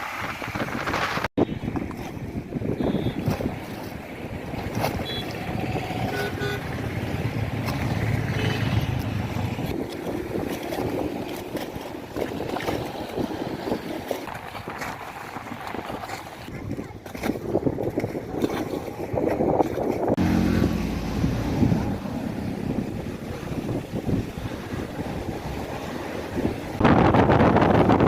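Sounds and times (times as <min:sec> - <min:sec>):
choppy lake water: 0:00.0 - 0:28.0
gusty wind: 0:00.0 - 0:28.0
boat motor running low: 0:04.5 - 0:11.9, 0:19.9 - 0:26.6.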